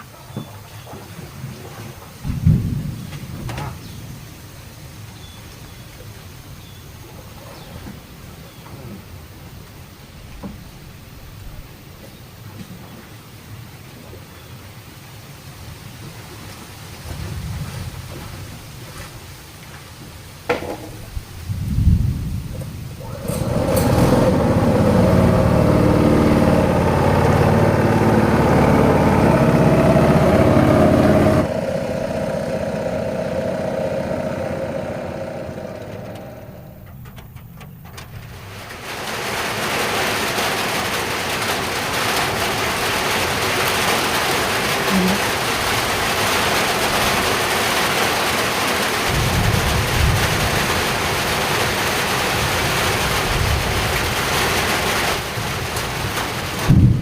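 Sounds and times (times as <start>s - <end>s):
heavy rain pouring: 1.6s - 11.9s, 15.0s - 57.0s
small engine running: 23.0s - 36.9s.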